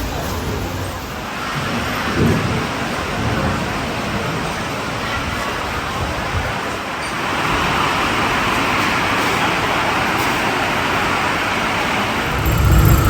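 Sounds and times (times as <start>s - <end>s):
street traffic noise: 0.0s - 13.0s
loud low rumble: 12.2s - 13.0s.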